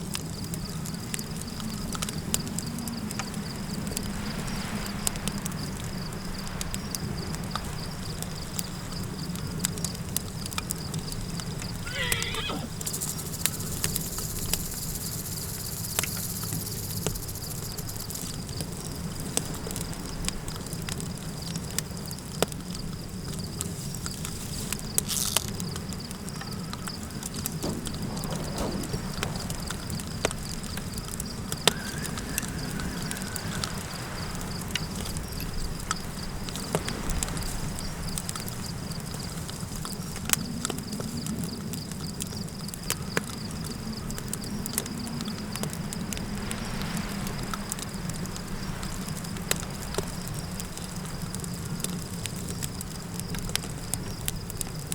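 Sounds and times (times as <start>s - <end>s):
campfire crackling: 0.0s - 54.9s
low wind: 0.0s - 54.9s
horse whinnying: 11.8s - 12.9s.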